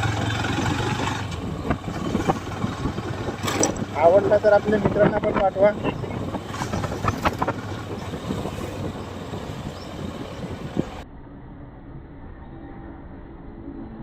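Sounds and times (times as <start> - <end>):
wind noise: 0.0 - 11.1
motorcycle engine rumble: 0.0 - 12.5.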